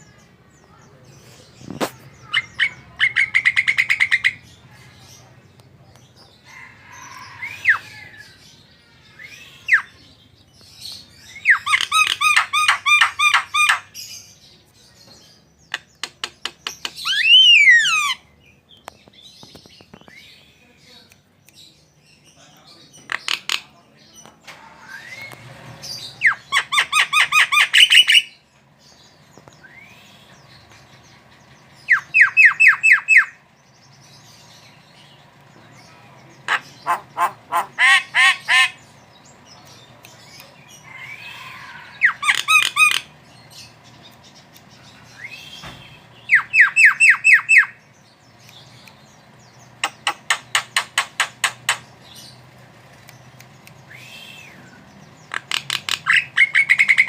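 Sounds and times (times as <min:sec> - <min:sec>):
soft bird whistles: 0:29.6 - 0:30.2, 0:53.9 - 0:54.7.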